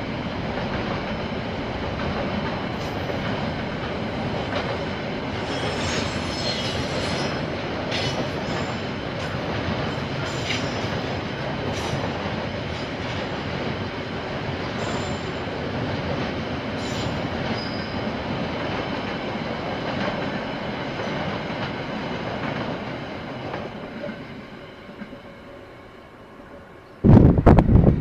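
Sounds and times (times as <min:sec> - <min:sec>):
train wheels rumbling on rail: 0:00.0 - 0:28.0
high wheel squeals: 0:05.4 - 0:08.8.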